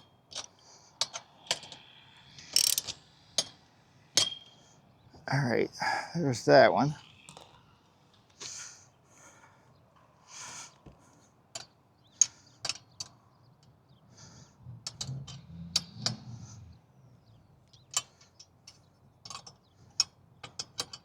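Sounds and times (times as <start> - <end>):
metallic clicks of wrench and bolts: 0.3 - 3.6, 4.2 - 4.6, 11.5 - 13.8, 14.8 - 16.4, 17.7 - 21.0.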